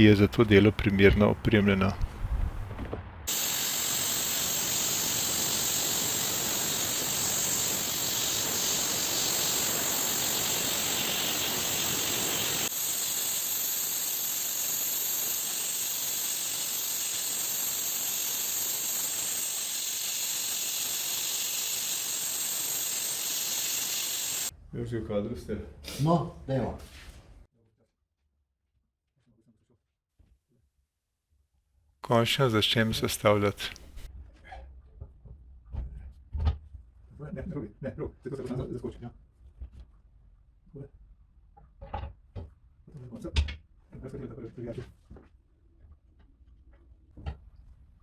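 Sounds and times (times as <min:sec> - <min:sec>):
compressed air gun hissing: 0:00.4 - 0:24.5, 0:32.4 - 0:34.1.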